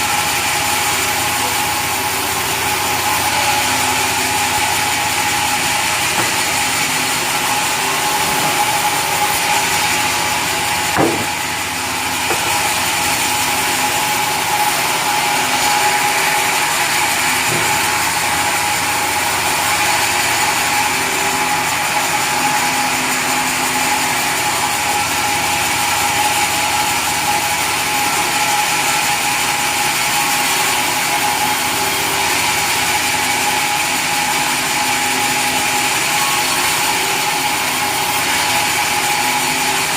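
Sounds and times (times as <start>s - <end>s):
sawmill saw whining: 0.0s - 39.9s
knock: 6.2s - 6.6s, 10.9s - 11.4s.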